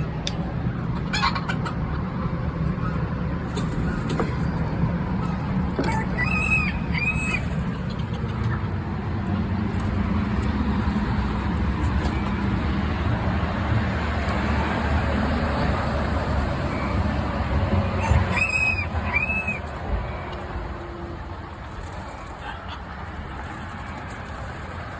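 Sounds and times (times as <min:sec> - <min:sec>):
steady low rumble: 0:00.0 - 0:22.2
arched bird calls: 0:02.8 - 0:08.8, 0:16.4 - 0:20.4.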